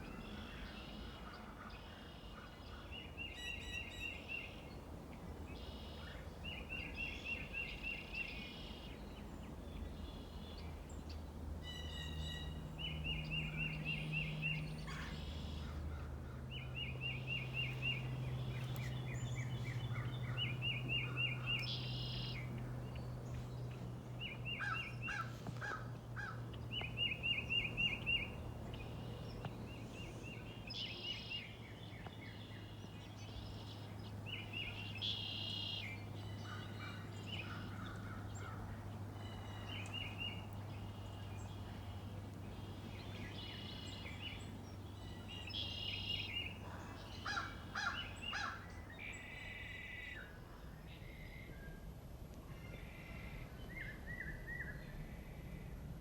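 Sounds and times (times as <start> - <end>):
other birds calling: 13.7 - 49.6.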